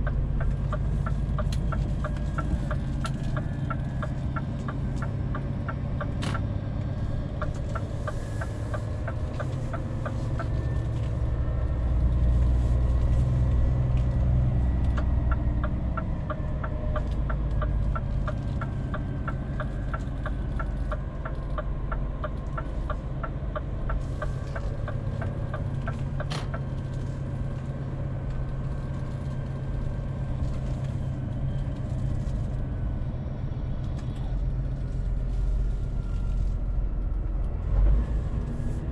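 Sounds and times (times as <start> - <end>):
turn signal ticking: 0.0 - 32.2
truck engine running: 0.0 - 38.9.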